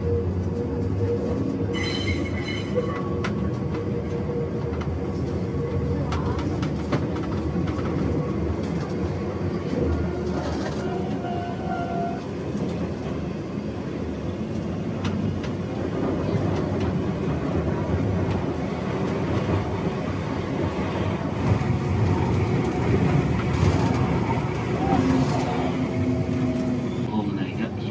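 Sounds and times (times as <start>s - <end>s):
train rumble from inside: 0.0s - 27.9s
wheels clicking on track: 21.4s - 26.8s.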